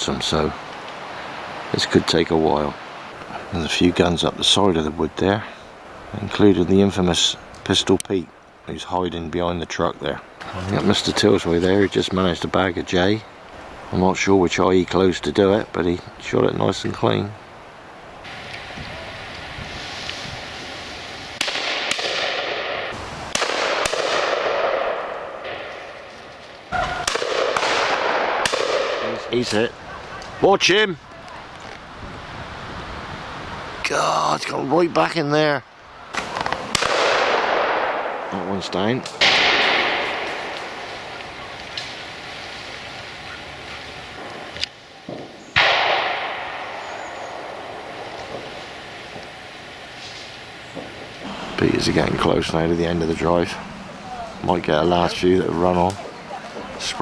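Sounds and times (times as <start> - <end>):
shotgun shots: 21.4 - 26.0, 26.8 - 29.3, 36.1 - 38.4, 39.1 - 40.9, 45.6 - 48.6
sharp short crack: 21.4 - 29.6, 36.2 - 38.2, 39.0 - 42.0, 44.2 - 48.6.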